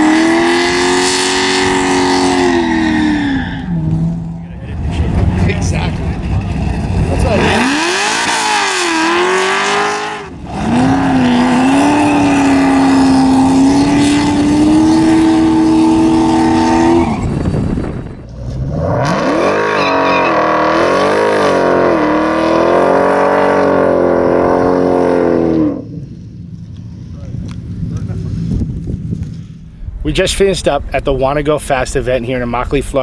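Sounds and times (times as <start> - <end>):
race car engines at full throttle: 0.0 - 29.8.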